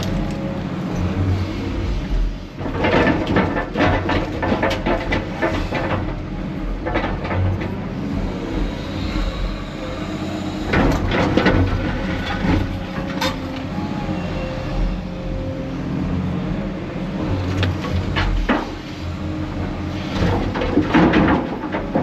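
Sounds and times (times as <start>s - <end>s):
diesel machinery rumbling: 0.0s - 22.0s
clanks and knocks: 2.6s - 7.8s, 10.7s - 13.7s, 17.5s - 19.0s, 20.1s - 22.0s.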